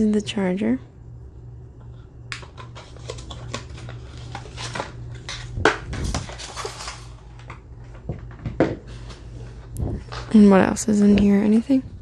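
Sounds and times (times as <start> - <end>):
charger and packaging handled: 2.4 - 8.4.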